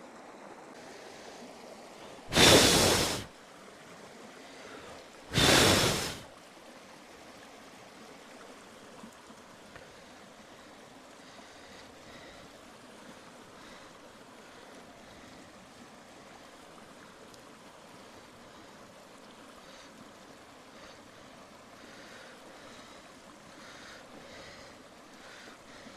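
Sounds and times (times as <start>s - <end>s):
faint steady hiss: 0.0s - 25.9s
loud rush of air: 2.3s - 3.3s, 5.3s - 6.2s.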